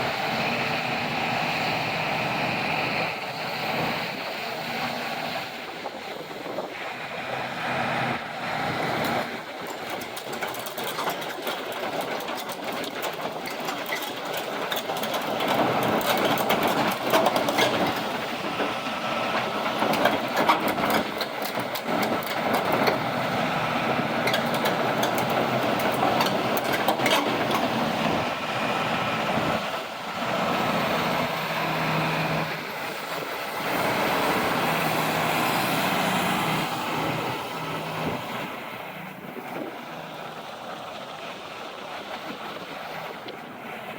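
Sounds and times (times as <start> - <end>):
excavator diesel engine running: 0.0 - 43.9
metallic clicking and clanking: 9.6 - 18.1, 24.2 - 27.8.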